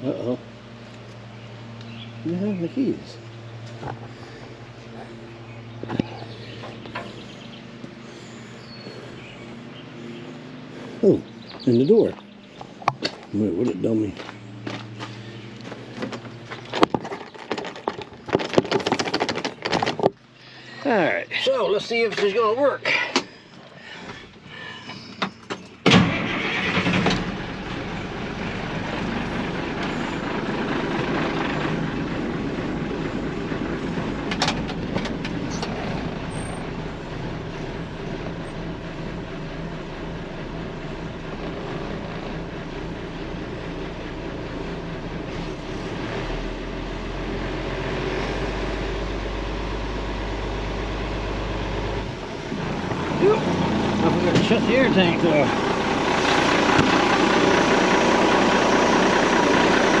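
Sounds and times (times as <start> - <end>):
diesel engine running: 0.0 - 60.0.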